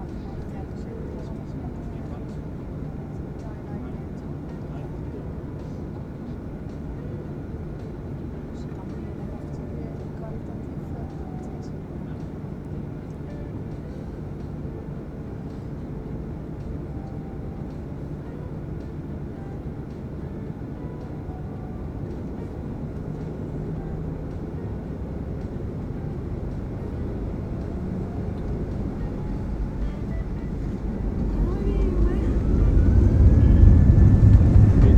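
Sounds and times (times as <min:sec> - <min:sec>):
airliner cabin engine rumble: 0:00.0 - 0:34.9.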